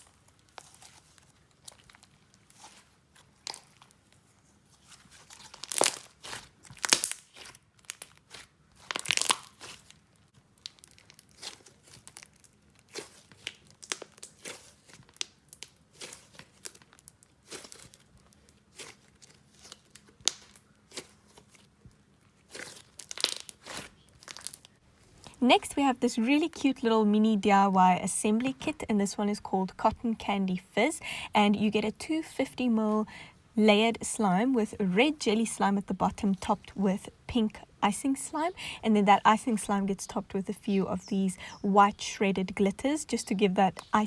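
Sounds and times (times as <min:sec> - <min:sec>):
hands squishing slime: 0:00.0 - 0:25.4
sticky crackles and crunchy pops: 0:00.0 - 0:25.4.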